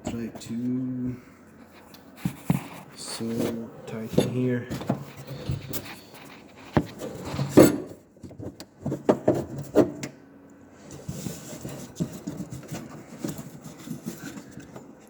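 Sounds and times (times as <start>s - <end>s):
soft scraping: 0.1s - 7.9s.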